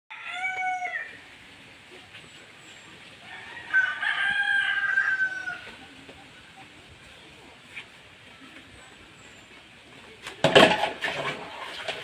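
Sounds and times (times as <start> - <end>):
rooster crowing: 0.1 - 1.2, 3.2 - 5.7.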